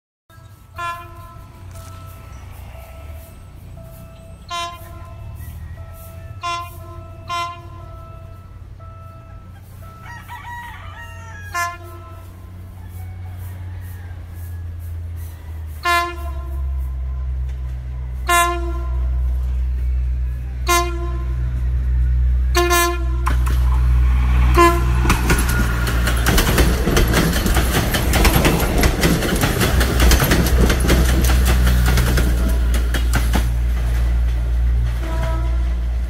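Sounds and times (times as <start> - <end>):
train horn toots: 0.3 - 27.3, 30.0 - 33.0, 34.1 - 36.0
train rumbling past: 0.3 - 36.0
wheels clattering over rails: 23.2 - 36.0.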